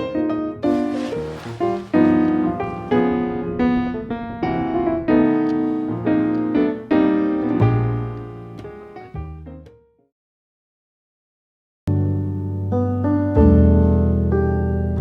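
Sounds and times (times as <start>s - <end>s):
piano chords: 0.6s - 8.9s.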